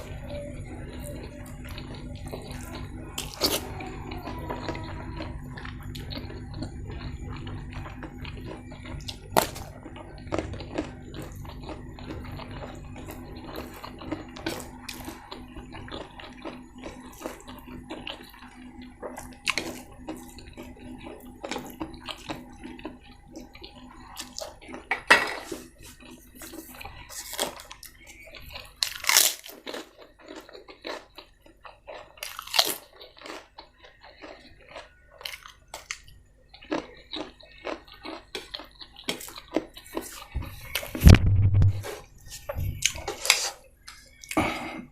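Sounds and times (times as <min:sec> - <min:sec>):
low hum: 0:00.0 - 0:28.9, 0:38.7 - 0:44.9
person chewing with crunches: 0:00.0 - 0:44.9.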